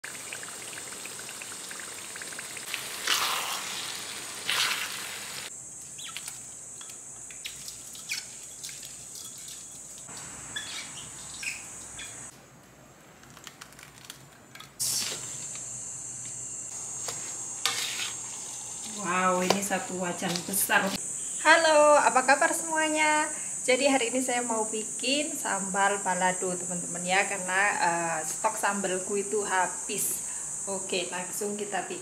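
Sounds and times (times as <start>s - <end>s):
chilli paste sizzling in a wok: 1.6s - 6.1s, 14.8s - 21.5s.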